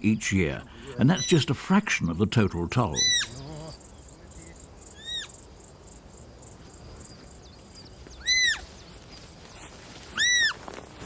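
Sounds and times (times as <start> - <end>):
insects chirping: 0.0 - 11.0
deer fawn bleating: 2.9 - 3.8.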